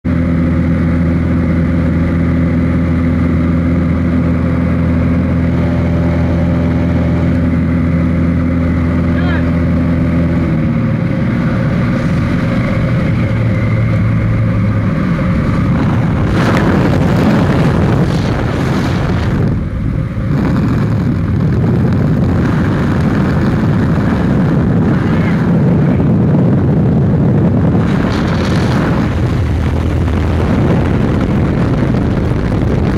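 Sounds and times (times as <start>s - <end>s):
engine drone: 0.0s - 32.9s
air rushing over microphone: 9.2s - 32.9s.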